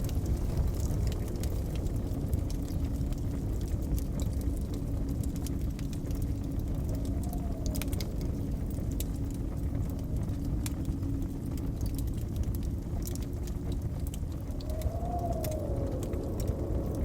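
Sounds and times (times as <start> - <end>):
whistling blizzard wind: 0.0 - 17.0
wood fire crackling and popping: 0.0 - 17.0.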